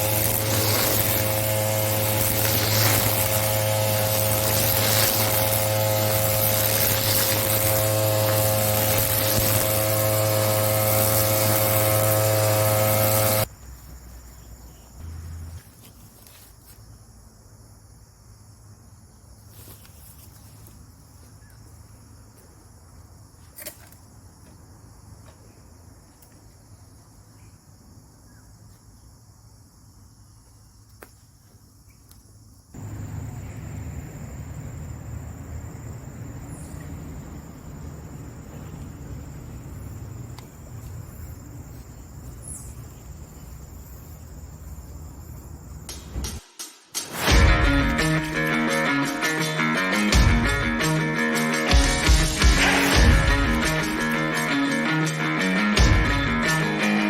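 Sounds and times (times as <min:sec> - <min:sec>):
brushcutter engine running: 0:00.0 - 0:13.5, 0:32.8 - 0:35.8
crickets buzzing: 0:00.0 - 0:46.4, 0:47.1 - 0:57.0.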